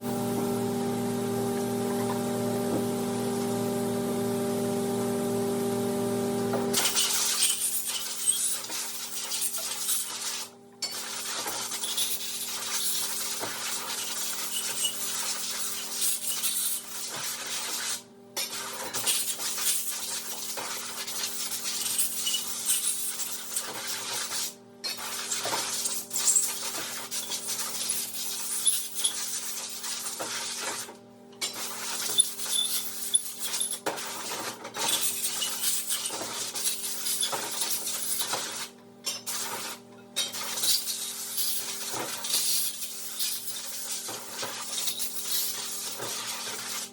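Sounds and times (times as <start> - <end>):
metal clinking and scraping: 6.7 - 46.9
hiss: 40.4 - 46.9.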